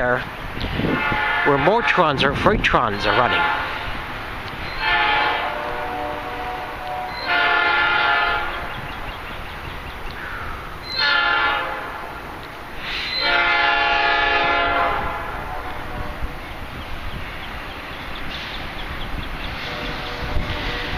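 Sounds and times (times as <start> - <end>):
train air horn blasts: 0.8 - 2.2, 3.0 - 3.9, 4.8 - 8.7, 11.0 - 12.2, 12.9 - 16.4, 19.6 - 20.9.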